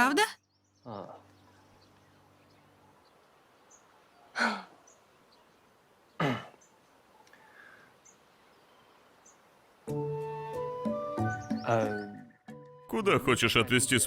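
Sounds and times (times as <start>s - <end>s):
breathy sigh: 4.4s - 4.8s.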